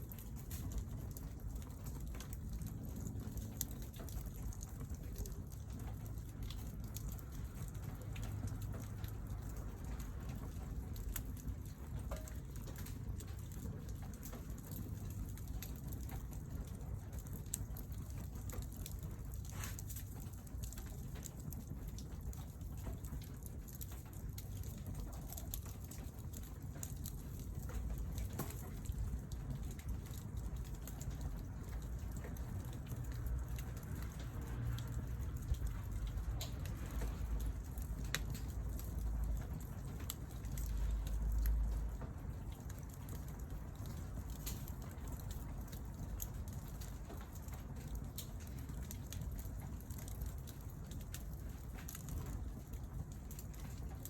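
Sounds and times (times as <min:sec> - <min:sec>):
fire low rumble: 0:00.0 - 0:54.0
wood fire crackling: 0:00.0 - 0:54.0
sharp fire pops: 0:00.1 - 0:34.4.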